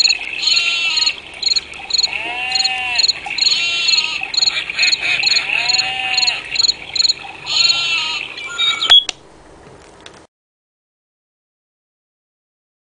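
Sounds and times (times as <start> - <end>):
crickets chirping: 0.0 - 8.0
frogs croaking: 0.0 - 9.0.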